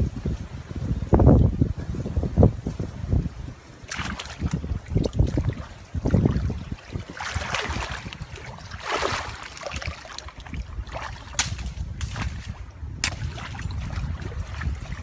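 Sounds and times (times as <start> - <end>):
wind rumble on microphone: 0.0 - 15.0
water sloshing and splashing: 3.6 - 15.0.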